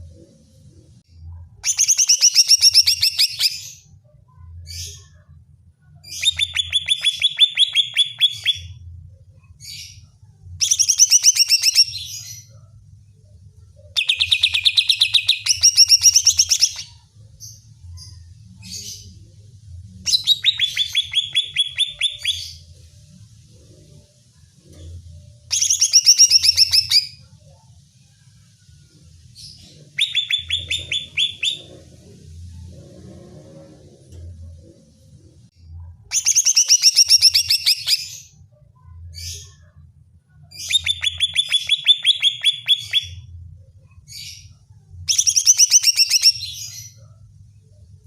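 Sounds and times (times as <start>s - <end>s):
bird singing fast whistled notes: 30.0s - 31.7s, 45.1s - 46.7s.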